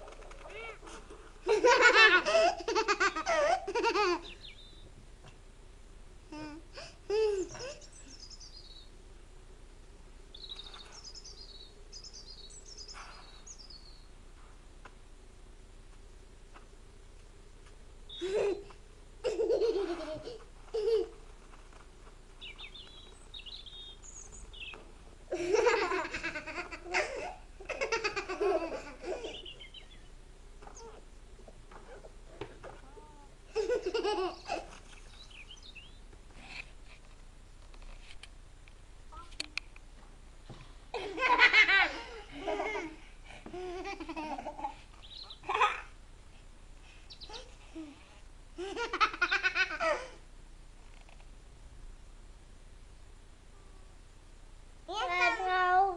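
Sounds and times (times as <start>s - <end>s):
faint steady hum: 0.0s - 55.9s
bird chirping: 4.2s - 4.9s, 7.5s - 9.0s, 10.3s - 14.1s, 22.4s - 24.9s, 29.2s - 30.9s, 34.3s - 36.1s, 45.0s - 45.5s, 47.1s - 47.5s.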